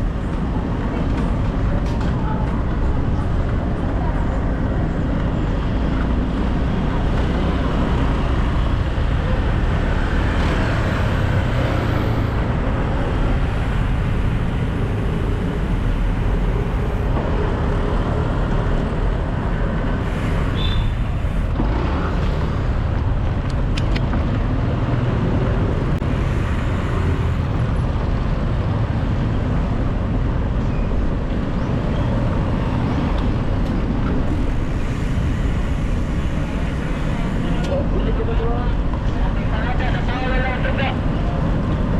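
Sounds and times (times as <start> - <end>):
road traffic rumble: 0.0 - 41.9
high squeal: 20.3 - 21.2.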